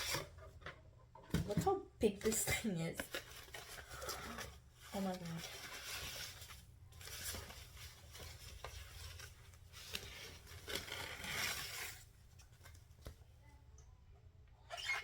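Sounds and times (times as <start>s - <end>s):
packaging rustling: 2.2s - 13.1s.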